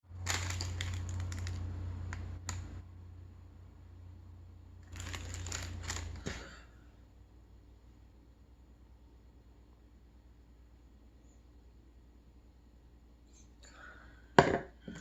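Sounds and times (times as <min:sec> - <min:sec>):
crunching of crisp fried food: 0:00.1 - 0:02.8, 0:04.8 - 0:06.4.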